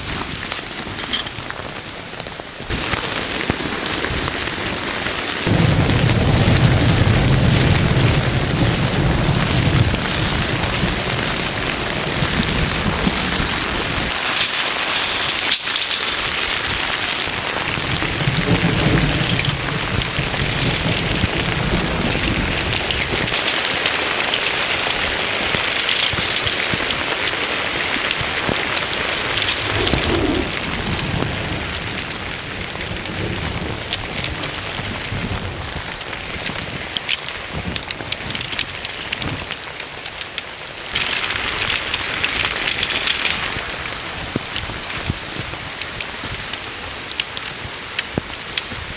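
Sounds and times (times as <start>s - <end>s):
heavy rain falling: 0.0s - 48.9s
low thunder rumbling: 2.6s - 39.6s.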